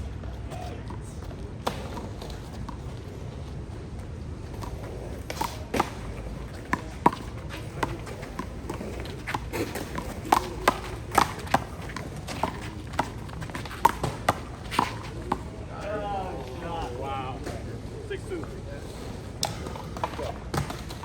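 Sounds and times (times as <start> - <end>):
ball bouncing off wall and court: 4.6 - 15.5, 19.4 - 21.0.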